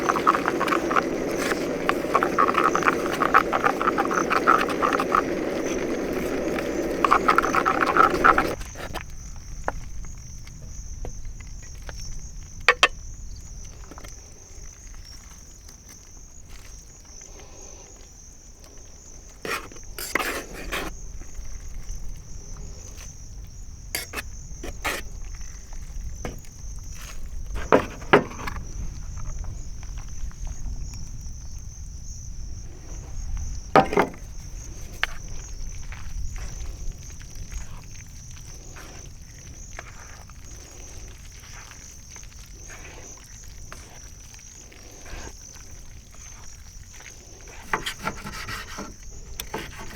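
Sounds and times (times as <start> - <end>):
frogs croaking: 0.0 - 49.9
high-pitched insect trill: 0.0 - 49.9
knocks and clicks: 12.7 - 13.0.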